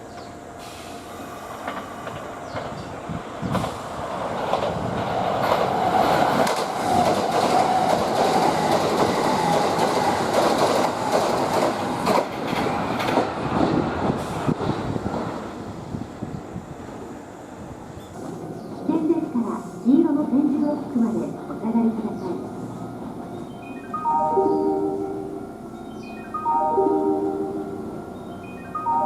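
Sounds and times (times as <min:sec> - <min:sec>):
electric train roaring past: 0:00.0 - 0:29.0
train wheels clicking on rail joints: 0:00.1 - 0:15.6.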